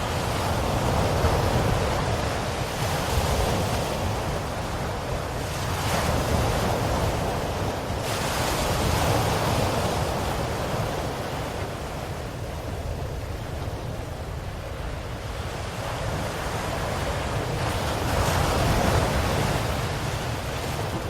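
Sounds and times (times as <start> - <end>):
ocean waves breaking on shore: 0.0 - 21.0.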